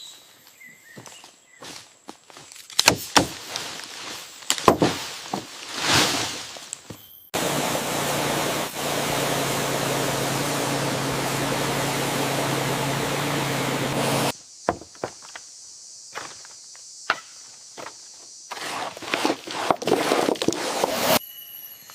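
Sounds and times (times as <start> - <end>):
motorised tool running: 7.4 - 14.3.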